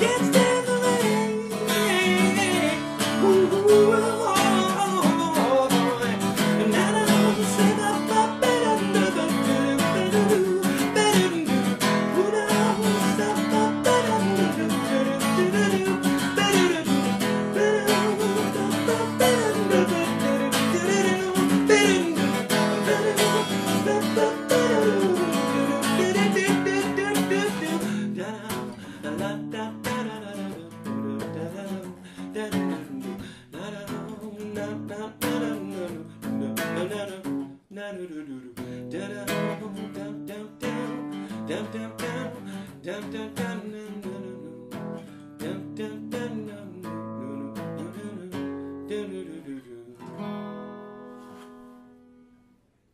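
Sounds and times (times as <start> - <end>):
person singing wordless notes: 0.0 - 31.7
acoustic guitar strumming: 0.0 - 37.5, 38.6 - 52.6.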